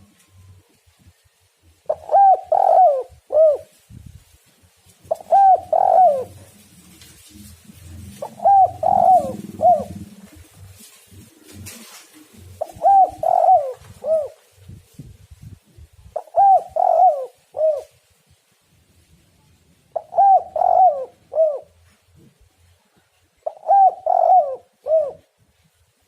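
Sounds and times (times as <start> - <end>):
dove cooing: 1.8 - 3.8, 5.1 - 14.7, 16.2 - 18.0, 19.9 - 21.9, 23.4 - 25.3.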